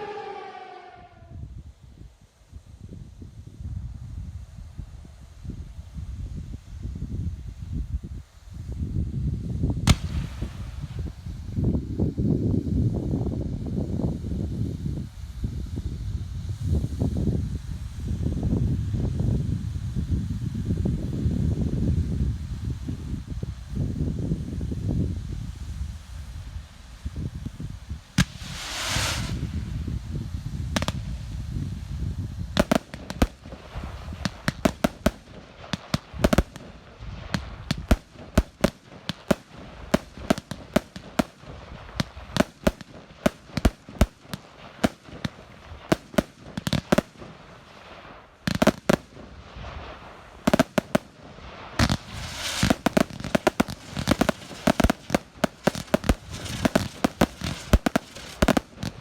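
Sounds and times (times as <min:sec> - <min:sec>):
fireworks hissing rush: 0:00.0 - 0:59.0
fireworks shells bursting: 0:28.1 - 0:30.0, 0:32.6 - 0:59.0.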